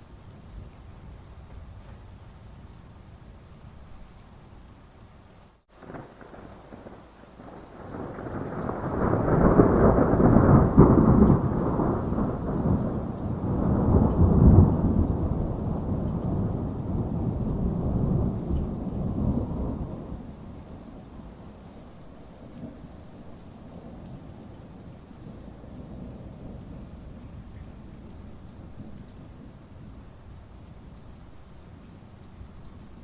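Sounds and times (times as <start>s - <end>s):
steady rain: 0.0s - 33.0s
thunder rolling: 5.8s - 21.1s.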